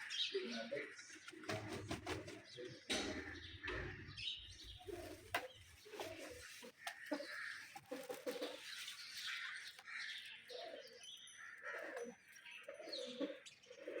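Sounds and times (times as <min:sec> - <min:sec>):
birds cooing: 0:00.0 - 0:14.0
soft rustling: 0:04.7 - 0:09.8.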